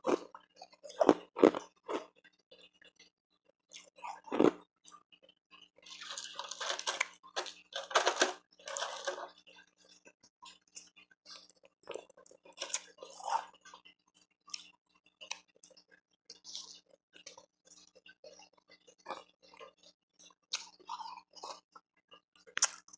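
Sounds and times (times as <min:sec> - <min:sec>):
crunching and chewing ice: 0:00.0 - 0:02.1, 0:03.8 - 0:04.6, 0:05.9 - 0:09.3
small mouth clicks: 0:22.6 - 0:22.9.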